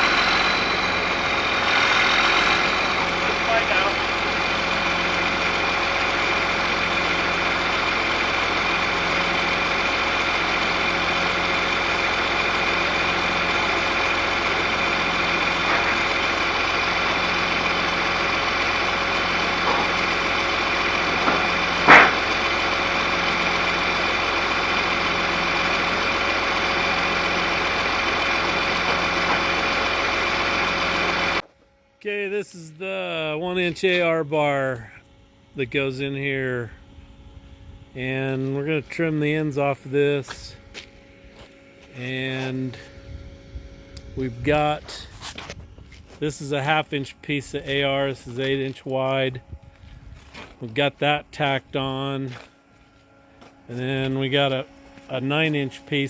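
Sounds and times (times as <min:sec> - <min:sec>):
engine idling with low pulse: 0:00.0 - 0:56.0.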